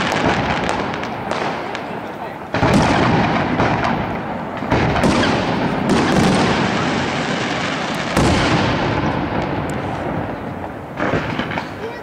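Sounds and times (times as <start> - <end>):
firework shells booming: 0.0 - 12.0.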